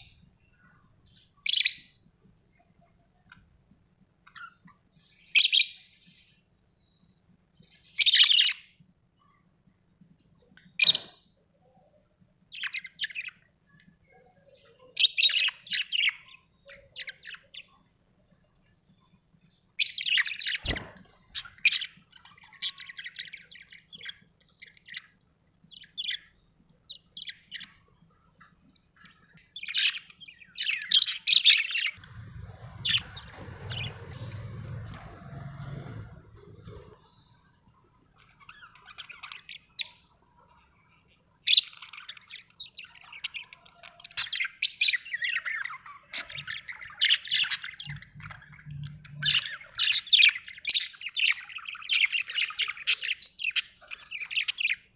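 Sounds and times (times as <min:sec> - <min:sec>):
parrots chirping and squawking: 0:07.7 - 0:08.7, 0:10.8 - 0:11.2, 0:14.6 - 0:17.8, 0:19.8 - 0:27.8, 0:29.0 - 0:40.6, 0:41.4 - 0:54.9
low hum: 0:32.0 - 0:38.0.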